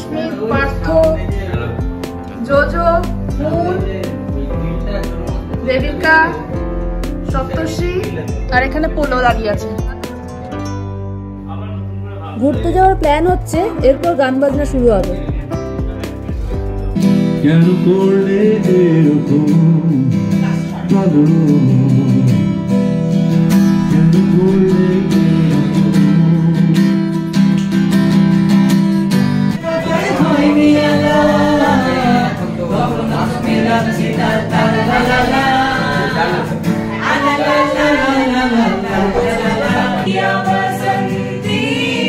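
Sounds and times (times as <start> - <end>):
acoustic guitar strumming: 0.0 - 11.4, 12.5 - 42.0
person singing: 23.7 - 27.2, 29.6 - 42.0.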